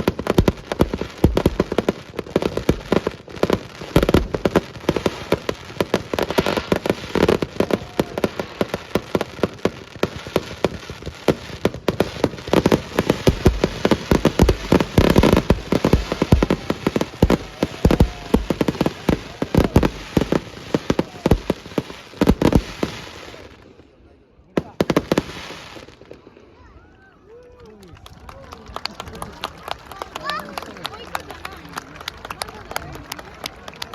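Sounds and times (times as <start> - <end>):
fireworks bangs and crackles: 0.0 - 26.6.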